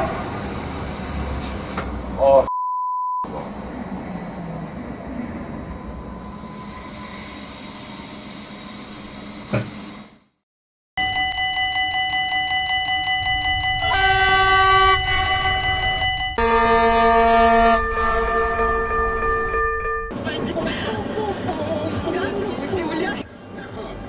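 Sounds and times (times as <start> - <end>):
train air horn: 0.0 - 0.5, 13.8 - 15.8, 16.4 - 20.1.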